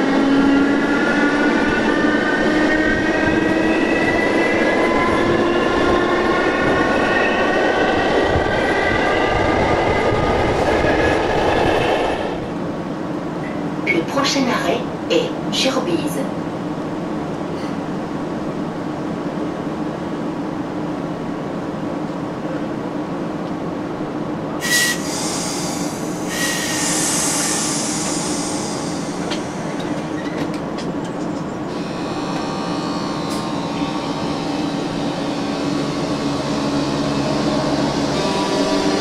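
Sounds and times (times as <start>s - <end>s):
train humming: 0.0s - 39.0s
air hiss: 24.6s - 30.7s
whining traction motor: 31.7s - 39.0s.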